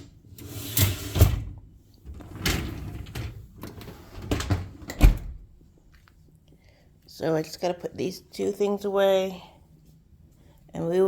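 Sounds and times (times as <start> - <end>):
dishwasher racks rolling on rails: 0.0 - 5.2.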